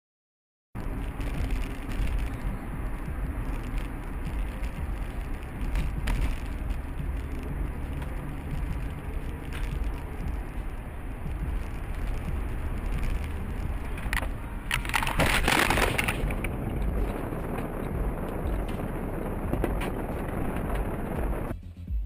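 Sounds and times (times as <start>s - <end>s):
car road and engine noise: 0.8s - 22.0s.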